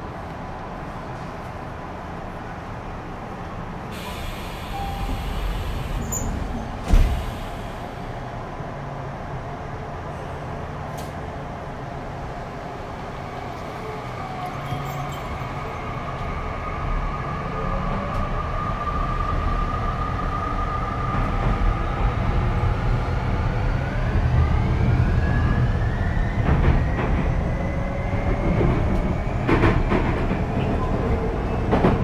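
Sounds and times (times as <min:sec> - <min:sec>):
rail-joint clacks: 0:28.3 - 0:32.0.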